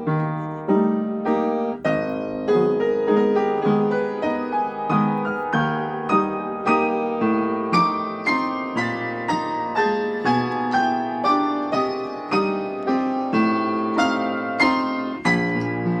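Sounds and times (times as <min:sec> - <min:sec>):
piano playing single notes: 0:00.0 - 0:16.0.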